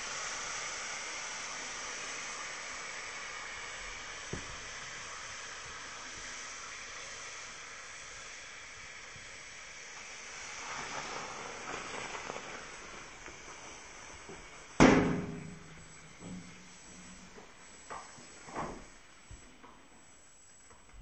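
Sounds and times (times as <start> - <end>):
small fire crackles: 0.0 - 21.0
wood fire hissing: 0.0 - 21.0
loud ringing bang: 14.8 - 16.5.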